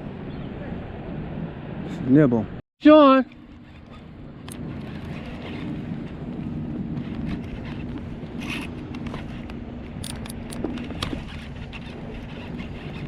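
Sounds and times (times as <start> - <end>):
fishing reel whirring: 3.2 - 6.2, 7.0 - 13.0.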